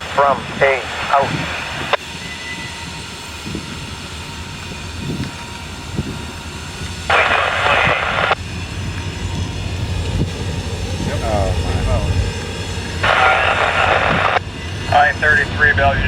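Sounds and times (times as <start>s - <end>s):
diesel locomotive idling: 0.0s - 16.0s
radio static burst: 0.1s - 2.0s, 7.1s - 8.4s, 13.0s - 16.0s.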